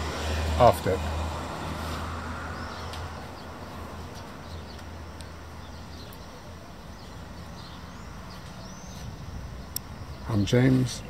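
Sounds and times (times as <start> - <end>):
small bird chirping: 2.6 - 10.6.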